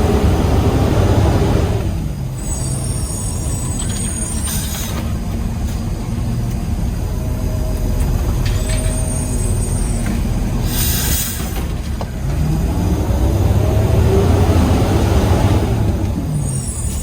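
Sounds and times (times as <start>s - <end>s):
diesel engine running: 0.0s - 17.0s
air brake hiss: 10.6s - 11.7s.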